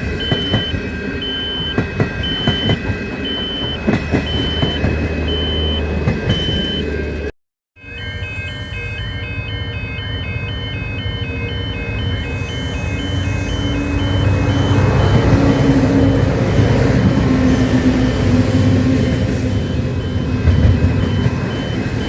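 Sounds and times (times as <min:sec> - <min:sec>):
train engine rumbling: 0:00.0 - 0:07.3, 0:08.0 - 0:22.0
two-note electronic warning tone: 0:00.2 - 0:06.9, 0:07.9 - 0:15.9.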